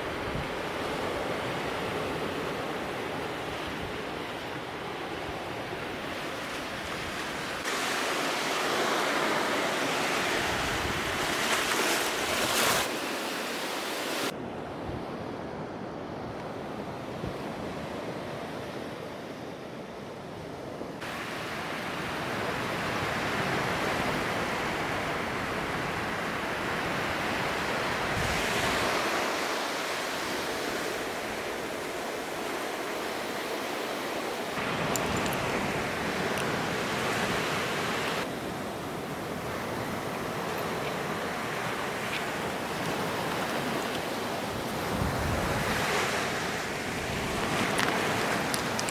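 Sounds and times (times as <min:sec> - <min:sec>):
ocean surf washing onto beach: 0:00.0 - 0:14.4, 0:21.0 - 0:48.9
wind gusting across microphone: 0:08.7 - 0:12.9, 0:27.1 - 0:33.5, 0:34.4 - 0:48.9.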